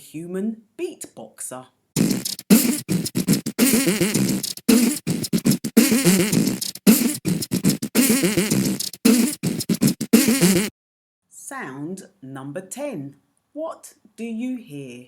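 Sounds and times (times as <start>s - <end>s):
person beatboxing: 2.0s - 10.7s.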